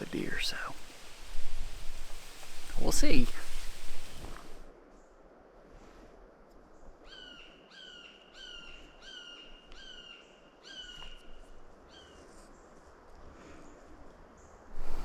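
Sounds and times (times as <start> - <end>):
bird calling: 0.0 - 4.6, 7.1 - 12.3.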